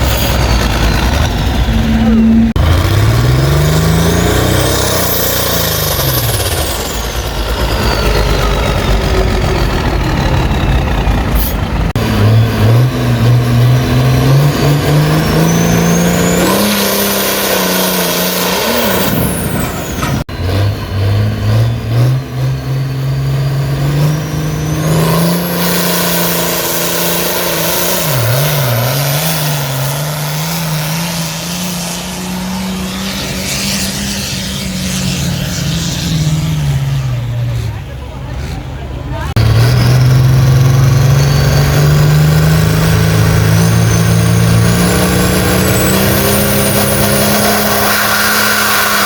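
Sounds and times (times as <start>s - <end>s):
engine under full load: 0.0s - 49.0s
high whine: 0.0s - 49.0s.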